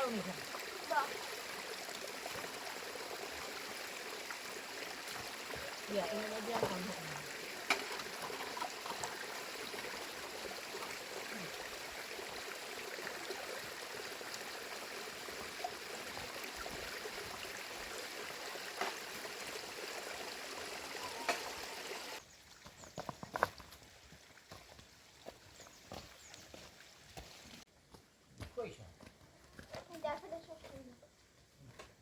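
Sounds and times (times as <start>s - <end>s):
rainwater running: 0.0s - 22.2s.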